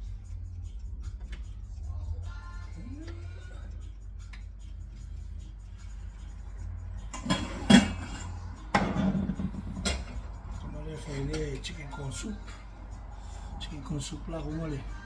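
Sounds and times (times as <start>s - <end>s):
steady low hum: 0.0s - 15.0s
cookware and utensils clattering: 7.1s - 11.8s.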